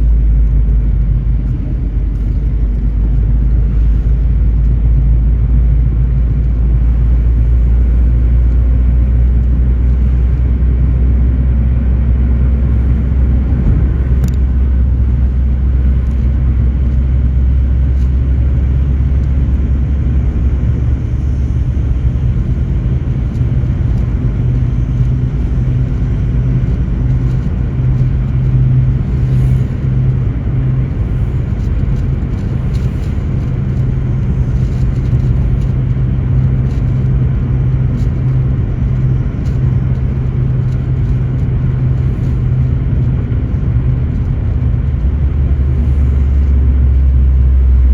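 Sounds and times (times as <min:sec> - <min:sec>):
car engine rumble: 0:00.0 - 0:47.9
road noise: 0:00.0 - 0:47.9.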